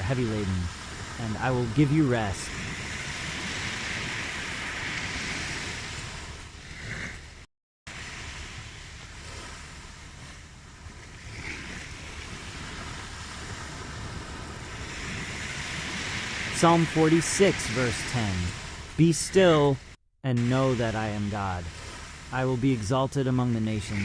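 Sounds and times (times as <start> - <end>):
ocean waves on shore: 0.0 - 24.0.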